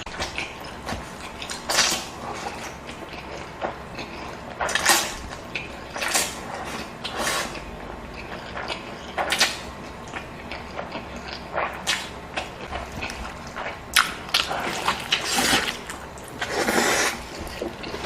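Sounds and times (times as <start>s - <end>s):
person eating close-up: 0.0s - 18.0s.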